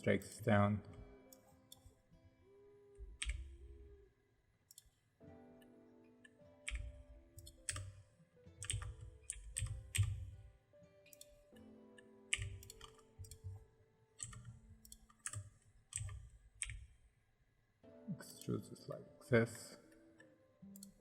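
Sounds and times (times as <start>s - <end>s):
soft background music: 0.0s - 21.0s
computer clicks and taps: 3.0s - 3.9s, 4.7s - 5.0s, 5.6s - 17.0s, 19.9s - 21.0s.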